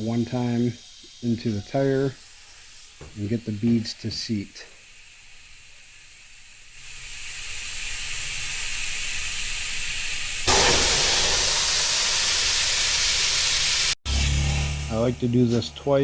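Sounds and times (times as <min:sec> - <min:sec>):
compressed air hissing: 0:00.0 - 0:09.6, 0:10.4 - 0:14.4.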